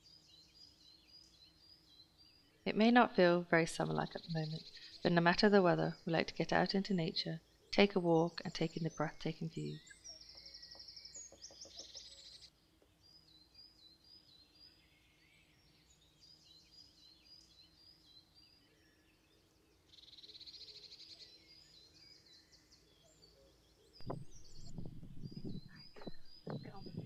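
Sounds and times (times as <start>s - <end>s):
faint small birds singing: 0.0s - 27.0s
knocks near microphone: 24.0s - 27.0s
rustling near microphone: 24.0s - 27.0s.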